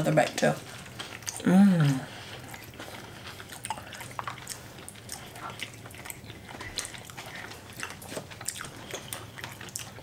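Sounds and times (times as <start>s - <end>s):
people chewing: 0.0s - 10.0s.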